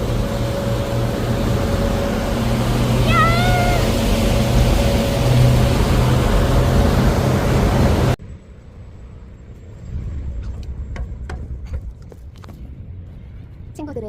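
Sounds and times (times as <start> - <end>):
water noise: 0.0 - 8.2
ferry engine humming: 0.0 - 14.0
rushing wind: 0.0 - 14.0.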